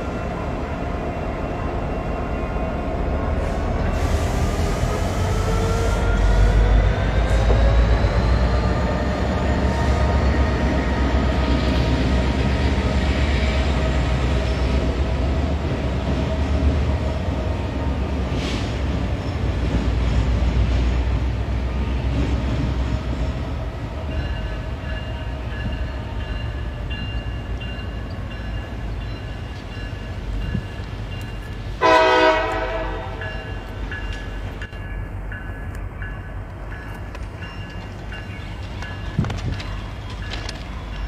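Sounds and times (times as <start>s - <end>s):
train rumbling: 0.0s - 41.0s
train horn: 31.8s - 33.7s.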